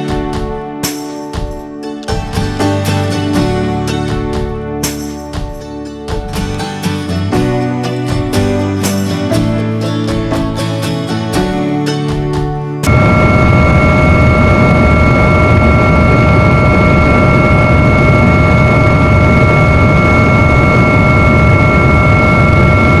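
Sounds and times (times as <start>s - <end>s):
music: 0.0s - 23.0s
drone propellers whirring: 12.8s - 23.0s.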